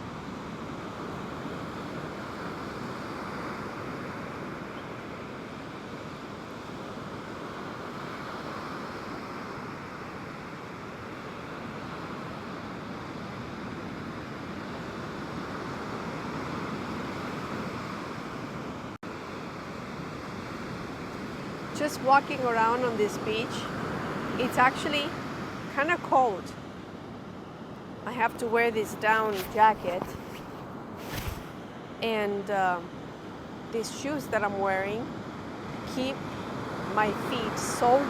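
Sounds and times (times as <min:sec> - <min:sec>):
waves breaking on beach: 0:28.4 - 0:31.6.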